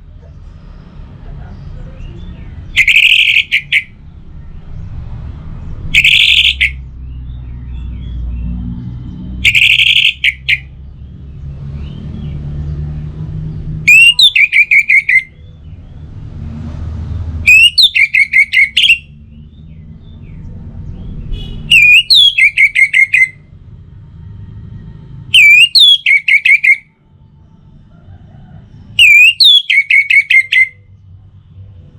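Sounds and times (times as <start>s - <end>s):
thrush whistling song: 2.6s - 4.0s, 5.9s - 6.9s, 9.4s - 10.7s, 13.9s - 15.4s, 17.4s - 19.5s, 21.2s - 23.5s, 25.3s - 26.9s, 29.0s - 30.8s.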